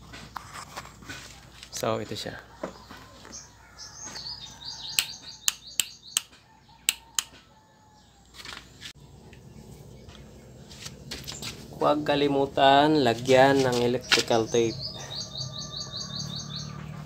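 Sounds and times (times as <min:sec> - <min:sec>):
small bird chirping: 0:02.7 - 0:08.2, 0:13.7 - 0:17.0
sharp clicks: 0:05.0 - 0:07.4.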